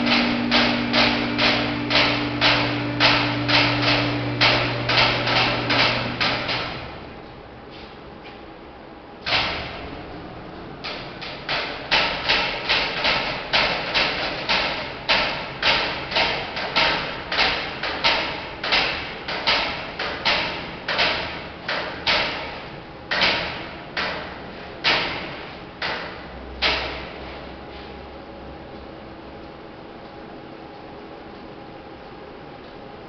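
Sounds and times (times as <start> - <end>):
hydraulic car lift knocking: 0.0 - 7.0, 9.2 - 10.0, 10.8 - 27.3.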